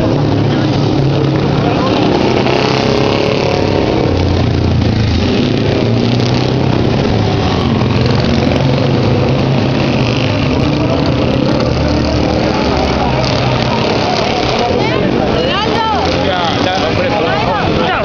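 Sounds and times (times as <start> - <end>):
motorcycle engines idling: 0.0 - 18.0.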